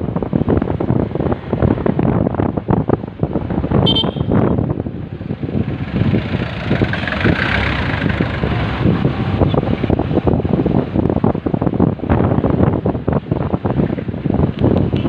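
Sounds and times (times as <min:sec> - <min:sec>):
traffic noise: 0:00.0 - 0:15.0
wind buffeting microphone: 0:00.0 - 0:15.0
motorcycle engine: 0:03.8 - 0:11.4.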